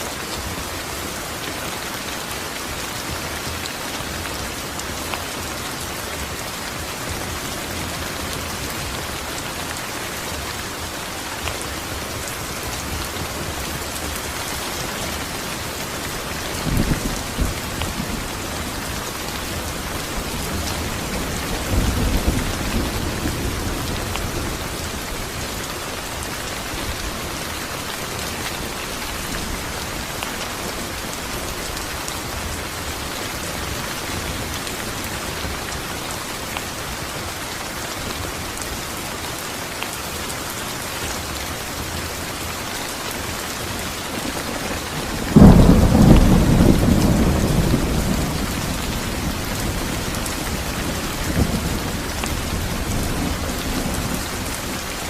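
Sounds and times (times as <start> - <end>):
heavy rain hissing: 0.0 - 55.0
thunderclap rumbling: 44.6 - 54.5.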